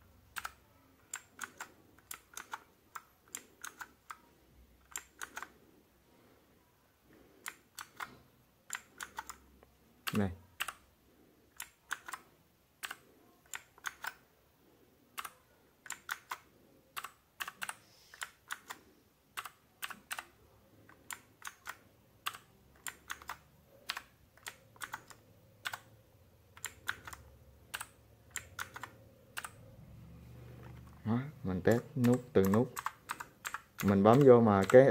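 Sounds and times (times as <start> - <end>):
mechanical keyboard clicks: 0.3 - 4.2, 4.8 - 5.5, 7.4 - 9.4, 10.0 - 10.8, 11.5 - 12.2, 12.8 - 14.2, 15.2 - 18.8, 19.4 - 20.3, 20.9 - 25.9, 26.5 - 29.6, 31.7 - 34.9.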